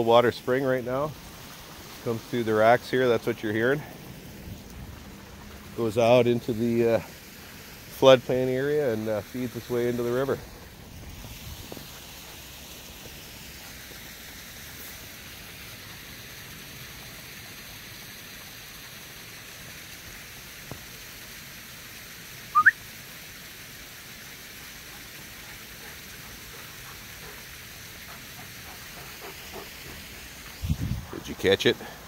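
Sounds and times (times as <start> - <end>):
water trickling through rocks: 0.0 - 32.0
short rising whistle-like chirp: 22.5 - 22.8.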